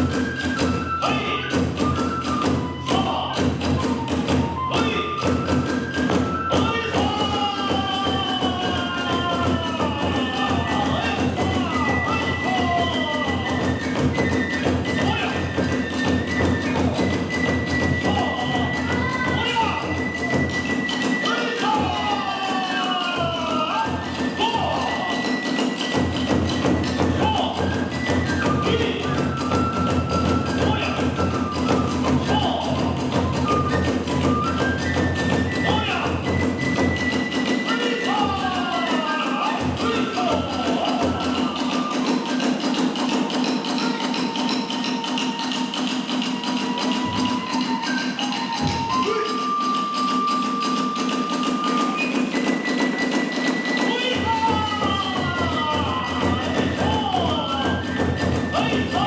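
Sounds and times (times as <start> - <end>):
bamboo flute melody: 0.0 - 59.0
drums and hand cymbals: 0.0 - 59.0
bamboo flute high note: 43.8 - 59.0.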